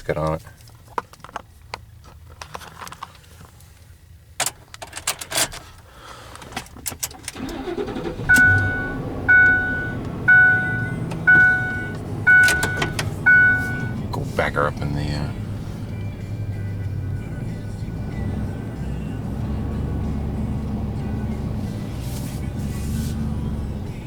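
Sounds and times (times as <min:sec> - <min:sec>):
truck engine starting and running: 0:04.3 - 0:24.0
key and cab clicks: 0:04.4 - 0:14.0
warning chime dinging: 0:08.0 - 0:14.0.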